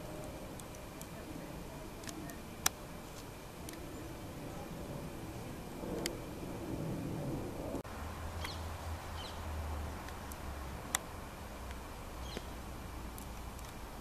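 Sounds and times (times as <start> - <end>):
low steady rumble: 0.0 - 14.0
outdoor background hiss: 0.0 - 14.0
bird chirps: 8.4 - 9.5, 12.2 - 12.6.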